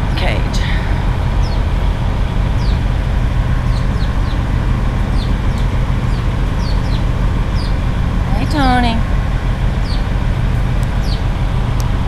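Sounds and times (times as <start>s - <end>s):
traffic and vehicle engines rumbling: 0.0s - 12.0s
small birds chirping: 1.3s - 9.0s, 9.8s - 10.1s, 10.8s - 12.0s.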